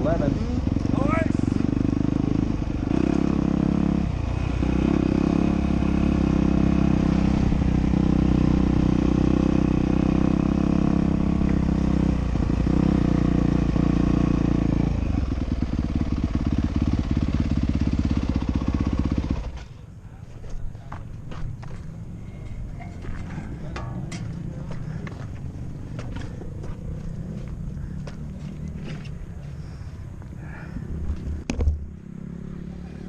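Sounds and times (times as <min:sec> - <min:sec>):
dirt bike engine running: 0:00.0 - 0:19.8.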